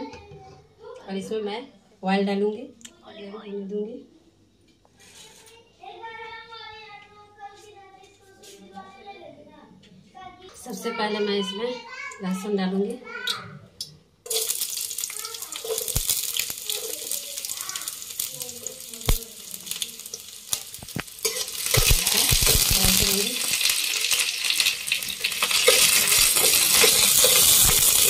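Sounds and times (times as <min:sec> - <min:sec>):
spatula scraping a pan: 0:05.0 - 0:05.5, 0:20.5 - 0:28.0
garlic sizzling in hot oil: 0:14.3 - 0:28.0.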